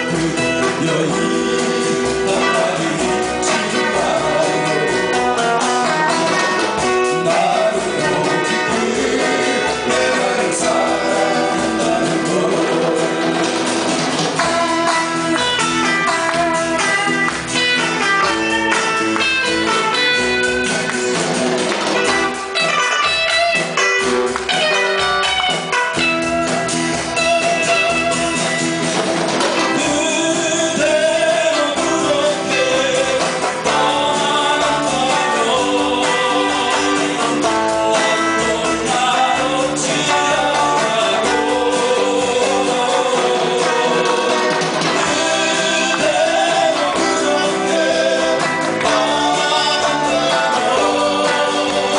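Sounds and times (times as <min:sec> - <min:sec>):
guitar melody: 0:00.0 - 0:51.9
live pop-rock band: 0:00.0 - 0:51.9.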